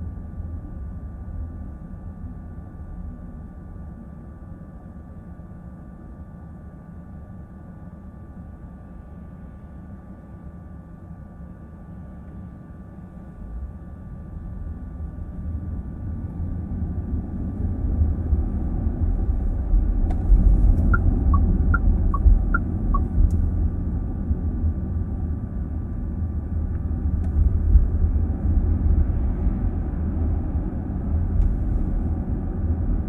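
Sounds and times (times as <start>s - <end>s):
road and tyre rumble: 13.4s - 33.0s.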